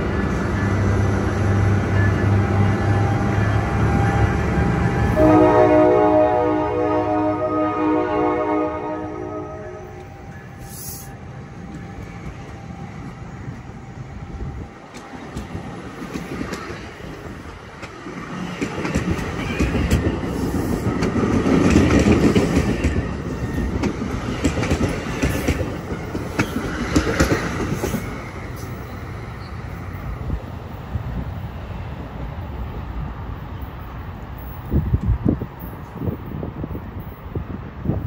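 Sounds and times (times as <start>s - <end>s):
train wheels clicking over rail joints: 14.8s - 28.9s.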